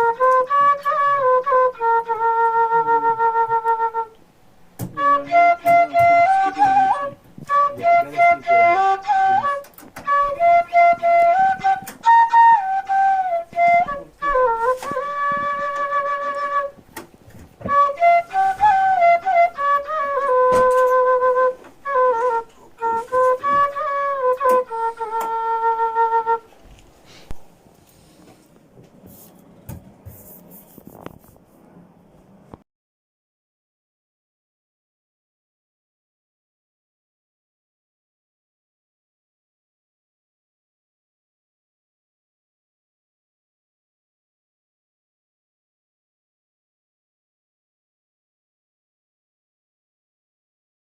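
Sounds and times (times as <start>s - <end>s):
flute melody: 0.0s - 4.2s, 4.8s - 26.8s.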